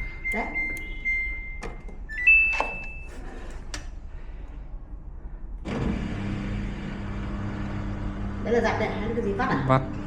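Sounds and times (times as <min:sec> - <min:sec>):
button clicks: 0:00.0 - 0:01.0
short electronic beeps: 0:00.0 - 0:03.1
washing machine hum: 0:00.0 - 0:10.0.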